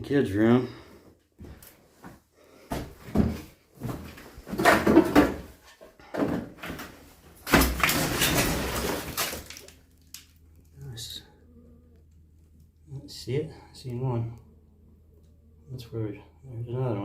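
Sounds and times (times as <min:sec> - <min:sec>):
scraping: 0:07.4 - 0:10.8.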